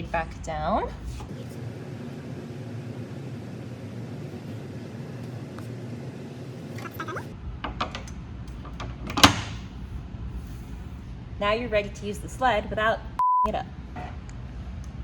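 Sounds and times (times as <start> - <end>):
steady low hum: 0.0 - 15.0
parts clicking and knocking: 7.6 - 9.7.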